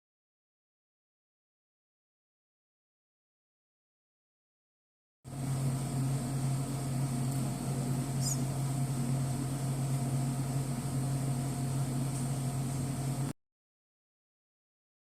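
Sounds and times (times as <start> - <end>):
faint high whine: 5.3 - 13.4
low mechanical hum: 5.3 - 13.4.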